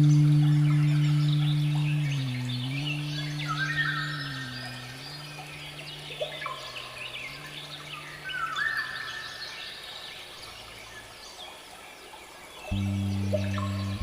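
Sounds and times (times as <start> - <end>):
ambient music drone: 0.0 - 9.6, 12.7 - 14.0
birds chirping and whistling: 0.0 - 9.8.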